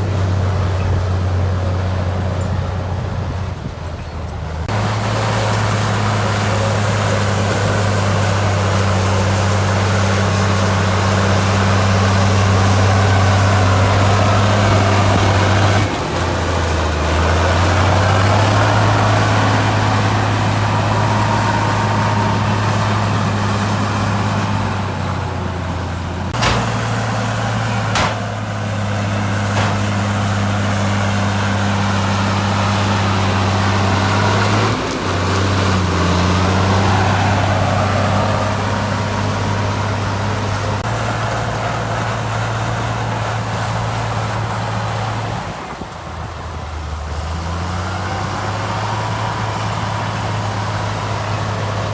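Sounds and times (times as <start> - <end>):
heavy diesel engine running: 0.0 - 51.9
sharp knocks: 26.3 - 28.7, 29.4 - 30.3.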